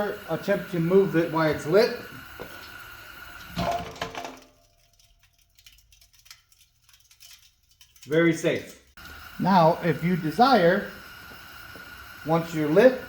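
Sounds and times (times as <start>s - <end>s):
gas heater burners hissing: 0.0s - 4.6s, 8.1s - 13.0s.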